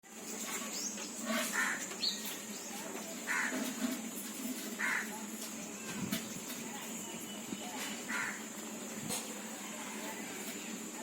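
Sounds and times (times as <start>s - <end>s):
crow cawing: 1.5s - 1.9s, 3.3s - 3.6s, 4.8s - 5.1s, 8.1s - 8.5s
small bird chirping: 2.0s - 2.8s.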